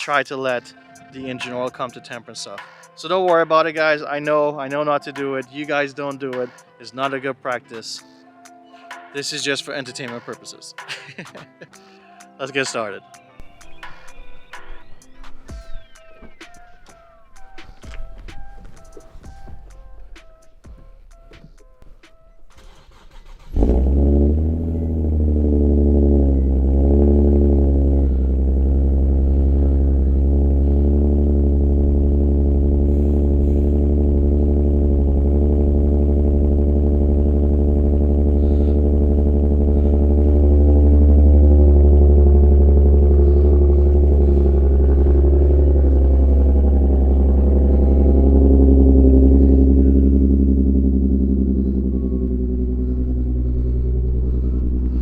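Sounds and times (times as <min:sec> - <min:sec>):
engine fast idle: 0:13.4 - 0:20.4, 0:21.1 - 0:55.0
car engine starting: 0:13.4 - 0:55.0.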